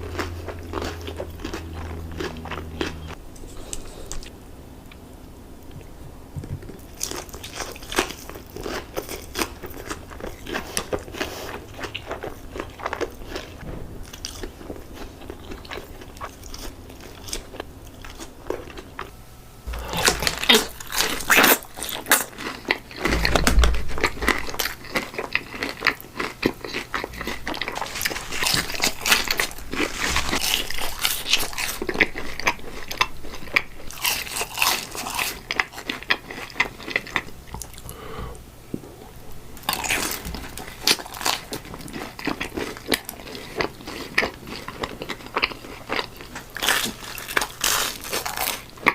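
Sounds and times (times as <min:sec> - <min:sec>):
quiet chewing: 0:00.0 - 0:05.0, 0:24.0 - 0:48.9
crunching bites of fried chicken: 0:39.6 - 0:48.9.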